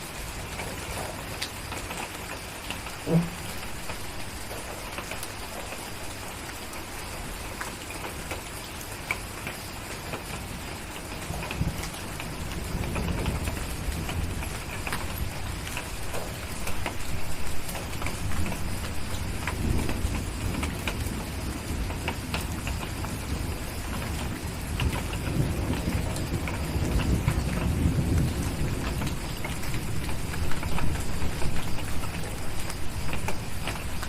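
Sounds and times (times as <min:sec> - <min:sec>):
steady rain: 0:00.0 - 0:34.0
distant thunder rolls: 0:03.0 - 0:04.2, 0:11.3 - 0:34.0.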